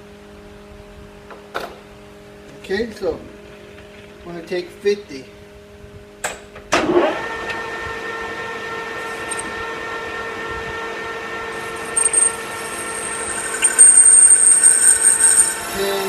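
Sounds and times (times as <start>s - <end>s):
metal lathe gear whine: 7.1s - 16.0s
high-pitched squeal: 9.0s - 9.6s, 11.2s - 16.0s.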